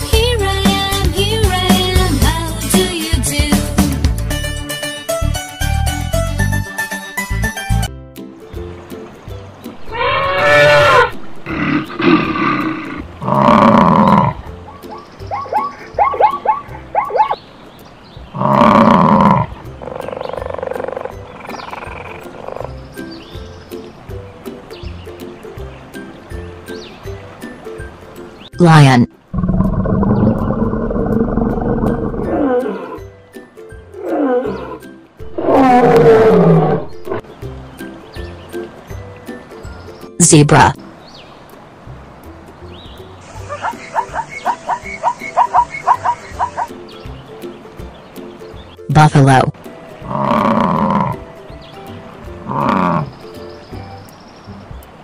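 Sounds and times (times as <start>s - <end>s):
background music: 0.0s - 55.0s
cartoon animal calls: 9.8s - 14.4s, 34.0s - 37.2s, 43.3s - 46.7s
lion roaring: 9.8s - 14.4s, 18.3s - 22.7s, 29.3s - 33.0s, 34.0s - 37.2s, 50.0s - 51.2s, 52.4s - 53.2s
lion growling: 9.9s - 14.4s, 18.3s - 22.8s, 29.3s - 33.0s, 34.0s - 37.2s, 50.0s - 51.3s, 52.4s - 53.2s.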